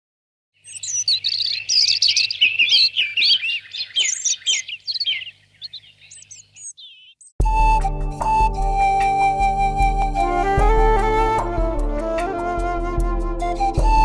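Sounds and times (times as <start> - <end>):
birds chirping and singing: 0.6 - 7.4.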